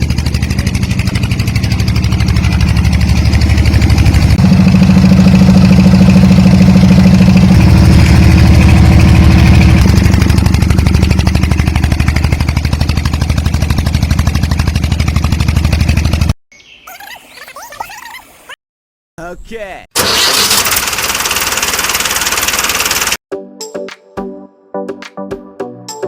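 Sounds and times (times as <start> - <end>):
small motor buzzing rattle: 20.3 - 23.2.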